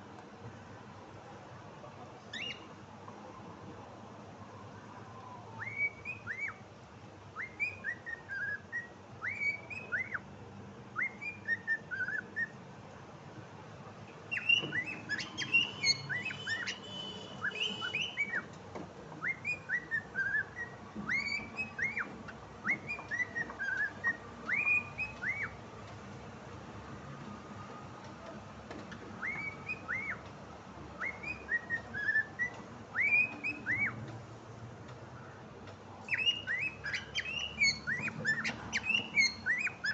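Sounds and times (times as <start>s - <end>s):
cockatiel whistling a tune: 2.3s - 2.7s, 5.5s - 6.6s, 7.4s - 10.2s, 11.0s - 12.6s, 14.3s - 18.6s, 19.2s - 25.6s, 28.9s - 30.3s, 30.9s - 34.1s, 36.0s - 39.9s
cockatiel clicks and chirps: 14.3s - 18.6s, 19.2s - 26.0s, 28.0s - 30.4s, 31.0s - 34.2s, 35.6s - 39.9s.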